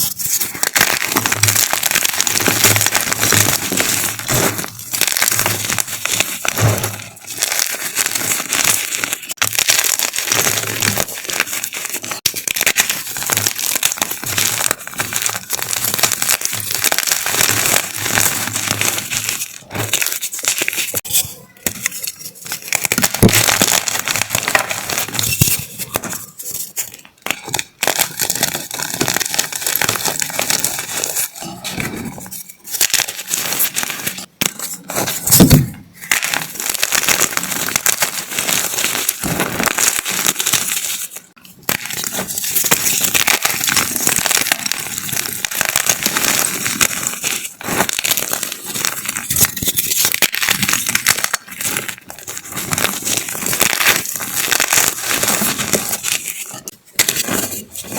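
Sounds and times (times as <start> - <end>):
chalk being crushed: 0.0 - 57.9.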